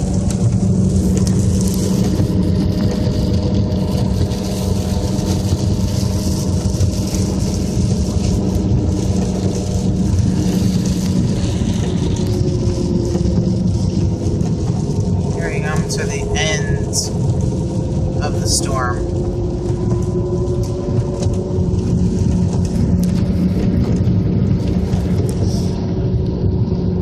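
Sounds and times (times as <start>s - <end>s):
car engine and tyre rumble: 0.0s - 27.0s
rain and spray hissing on car: 0.0s - 27.0s.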